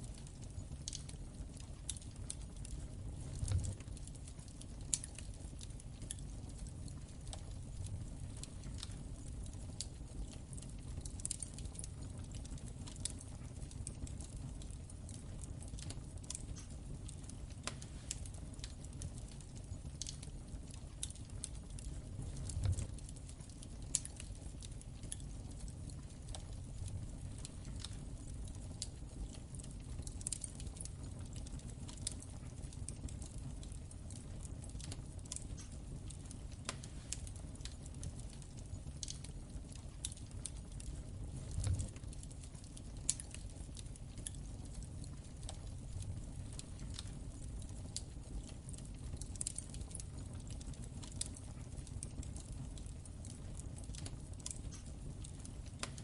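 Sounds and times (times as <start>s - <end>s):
wood fire crackling: 0.0s - 56.0s
low steady rumble: 16.5s - 31.8s, 40.0s - 49.1s.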